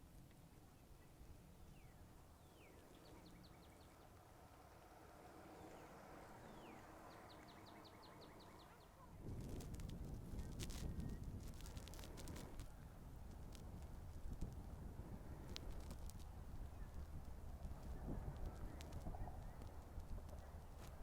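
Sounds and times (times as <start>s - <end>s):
low outdoor hush: 0.0s - 21.0s
low rumble: 9.2s - 21.0s.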